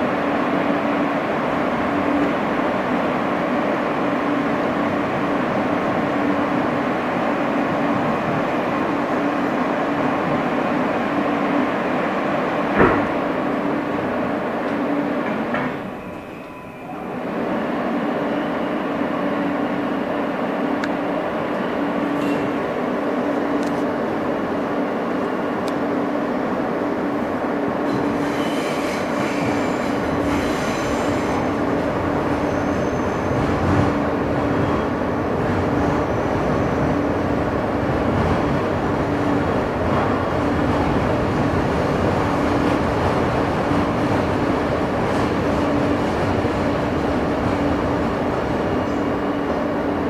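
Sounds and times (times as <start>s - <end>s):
subway wheels rumbling on rail: 0.0s - 50.0s.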